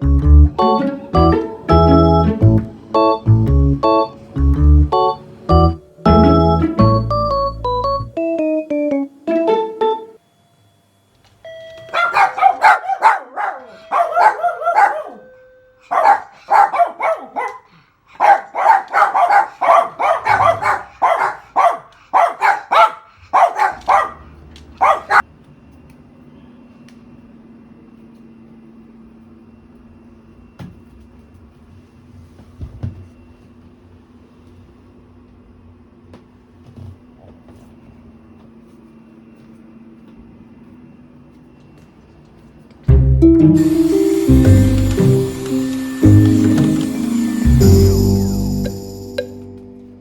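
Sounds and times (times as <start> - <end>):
electronic doorbell chime: 0.2 - 10.2, 11.4 - 12.0, 43.2 - 50.0
dog barking: 11.9 - 25.2.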